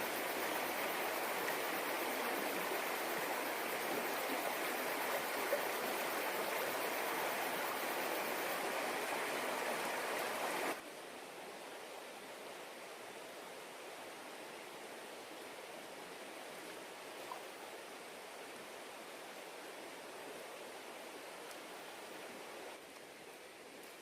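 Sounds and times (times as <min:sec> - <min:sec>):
soft hiss: 0:00.0 - 0:24.0
stream water running: 0:00.0 - 0:24.0.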